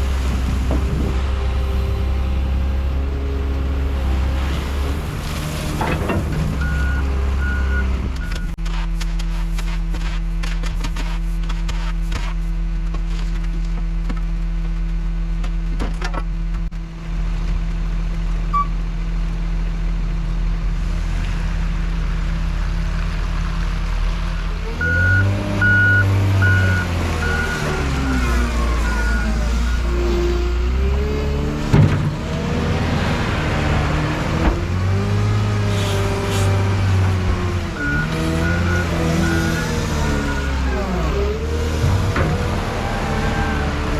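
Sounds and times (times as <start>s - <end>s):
heavy diesel engine revving: 20.8s - 43.9s
reverse alarm beeping: 24.8s - 29.9s.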